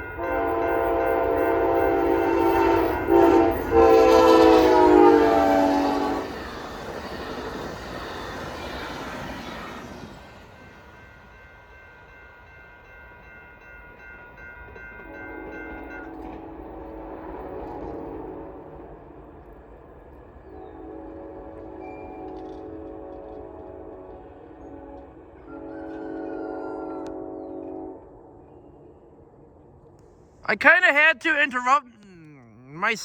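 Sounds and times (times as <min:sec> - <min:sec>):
train horn blowing: 0:00.0 - 0:06.4, 0:15.1 - 0:18.9, 0:20.4 - 0:28.3
train rumbling past: 0:00.0 - 0:13.4, 0:14.3 - 0:30.4.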